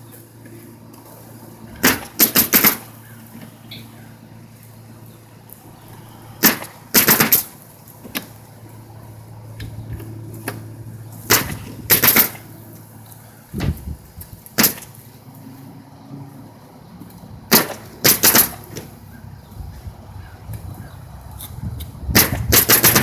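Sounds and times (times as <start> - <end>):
steady low hum: 0.0 - 23.0
nails being hammered: 1.8 - 2.9, 6.4 - 7.5, 11.3 - 12.4, 14.6 - 14.9, 17.5 - 18.9, 22.1 - 23.0.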